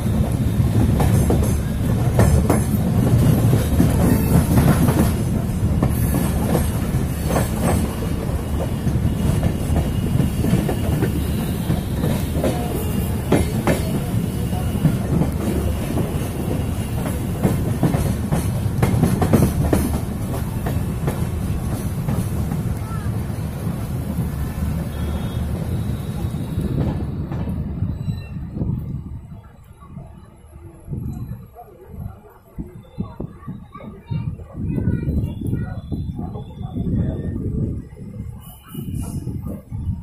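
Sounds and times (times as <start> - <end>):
train wheels clacking: 0.0 - 27.7
train rumbling on track: 0.0 - 40.0.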